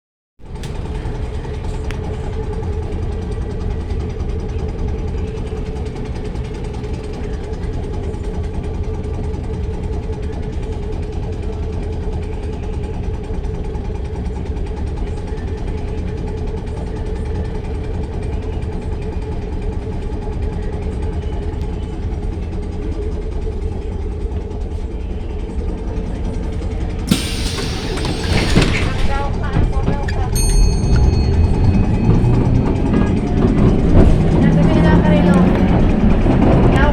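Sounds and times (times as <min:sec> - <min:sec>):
electric tram humming: 0:00.4 - 0:36.9
sudden burst of noise: 0:27.1 - 0:29.6.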